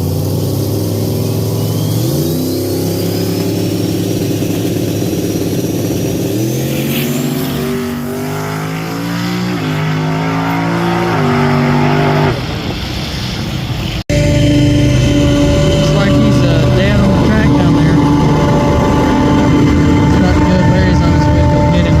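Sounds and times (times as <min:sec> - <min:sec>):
faint rising whine: 0:00.0 - 0:13.3, 0:14.1 - 0:22.0
racing car engine revving: 0:00.0 - 0:22.0.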